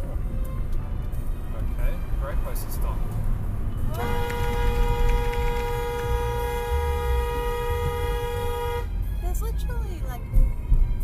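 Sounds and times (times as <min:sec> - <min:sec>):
road and engine rumble: 0:00.0 - 0:11.0
car horn blast: 0:03.9 - 0:08.9.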